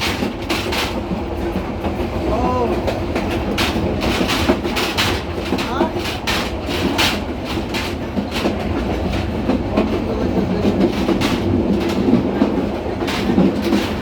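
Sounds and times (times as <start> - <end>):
train rumbling: 0.0 - 14.0
wheels clacking over rail joints: 0.0 - 14.0.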